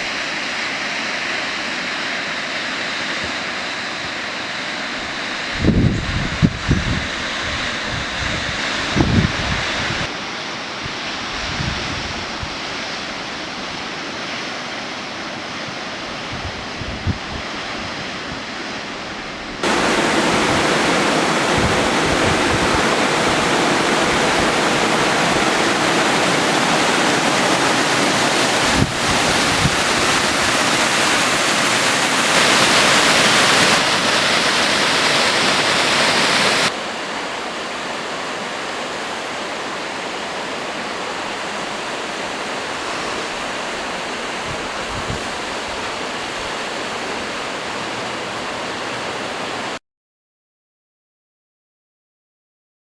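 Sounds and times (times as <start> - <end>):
waterfall rushing: 19.6 - 49.8.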